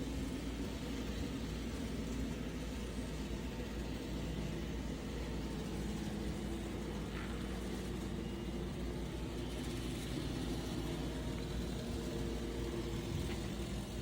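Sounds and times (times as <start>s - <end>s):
model train motor hum: 0.0s - 14.0s.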